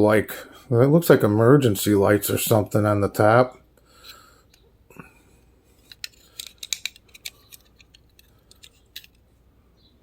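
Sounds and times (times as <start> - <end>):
toy truck clicks and taps: 5.9 - 9.2.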